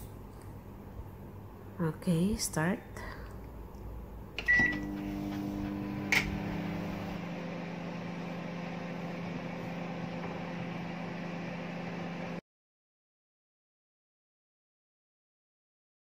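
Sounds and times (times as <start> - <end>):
microwave oven humming: 3.9 - 12.4
microwave oven beep: 4.4 - 7.2.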